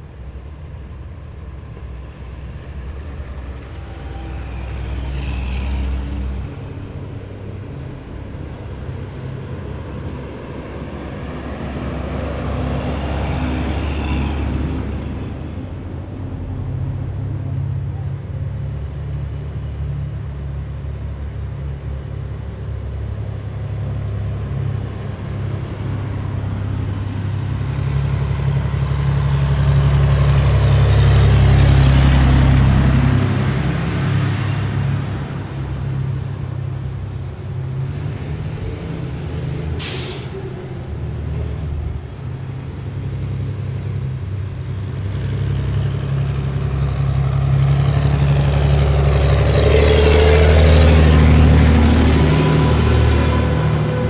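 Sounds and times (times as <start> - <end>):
heavy vehicles rumbling past: 0.0 - 54.0
air brake hiss: 39.8 - 40.6.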